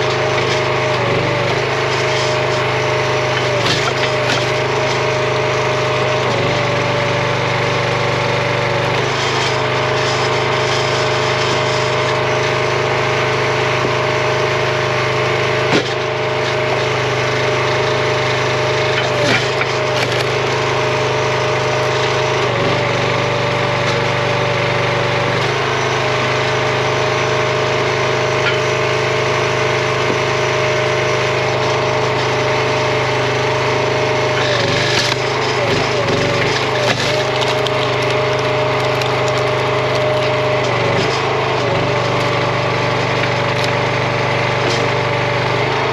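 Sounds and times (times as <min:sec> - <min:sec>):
log splitter engine running: 0:00.0 - 0:45.9
sharp wood cracks: 0:03.4 - 0:04.8, 0:18.9 - 0:20.6, 0:34.4 - 0:41.2.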